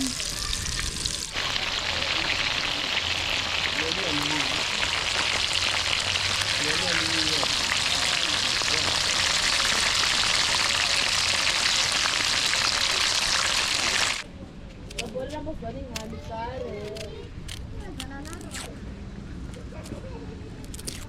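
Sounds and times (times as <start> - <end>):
food sizzling in hot oil: 0.0 - 14.2.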